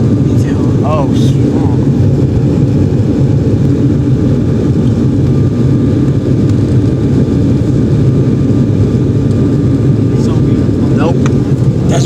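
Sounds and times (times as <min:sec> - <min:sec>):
faint steady whine: 0:00.0 - 0:12.0
jet engines roaring in cabin: 0:00.0 - 0:12.0.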